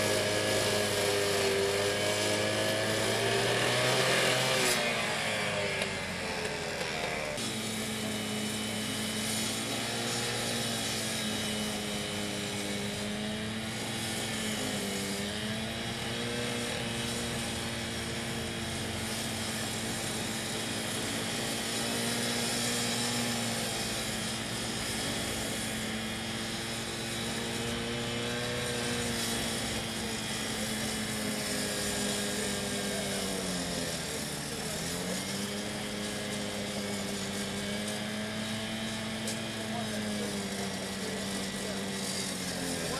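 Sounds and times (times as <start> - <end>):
engine running steadily: 0.0 - 42.9.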